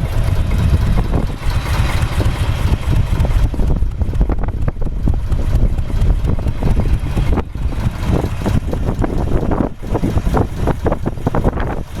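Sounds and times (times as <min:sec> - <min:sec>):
diesel boat engine chugging: 0:00.0 - 0:12.0
wind buffeting microphone: 0:00.0 - 0:12.0.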